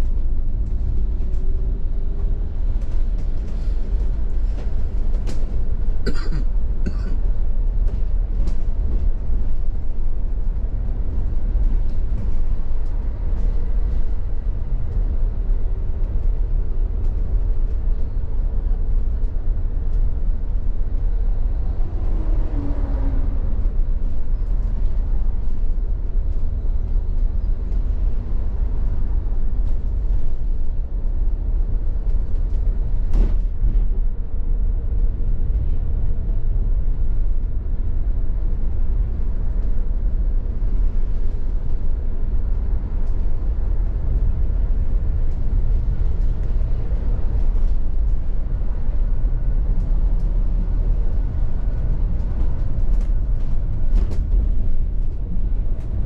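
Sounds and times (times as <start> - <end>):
low rumble of city background: 0.0 - 56.0.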